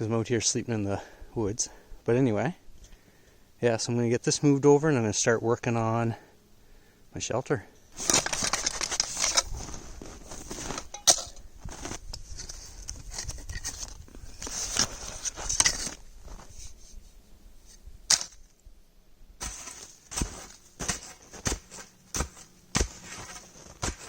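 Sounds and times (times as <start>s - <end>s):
crunching on crusty snow: 8.0s - 18.5s, 19.4s - 24.0s.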